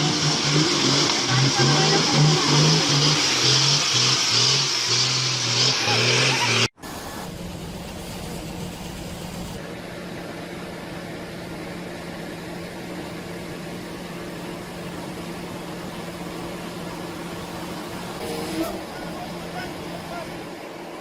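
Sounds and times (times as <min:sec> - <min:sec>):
engine idling: 0:06.8 - 0:21.0.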